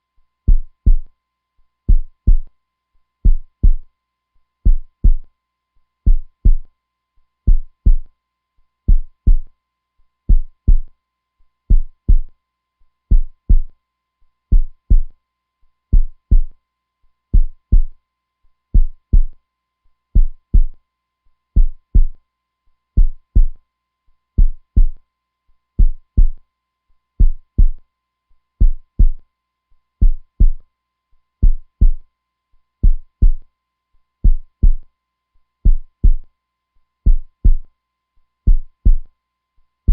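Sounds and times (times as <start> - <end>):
heartbeat thumps: 0.5 - 1.1, 1.9 - 2.5, 3.2 - 3.9, 4.7 - 5.2, 6.1 - 6.7, 7.5 - 8.1, 8.9 - 9.5, 10.3 - 10.9, 11.7 - 12.3, 13.1 - 13.7, 14.5 - 15.1, 15.9 - 16.5, 17.4 - 18.0, 18.8 - 19.3, 20.2 - 20.8, 21.6 - 22.2, 23.0 - 23.6, 24.4 - 25.0, 25.8 - 26.4, 27.2 - 27.8, 28.6 - 29.2, 30.0 - 30.6, 31.4 - 32.0, 32.8 - 33.4, 34.2 - 34.8, 35.7 - 36.2, 37.1 - 37.6, 38.5 - 39.1.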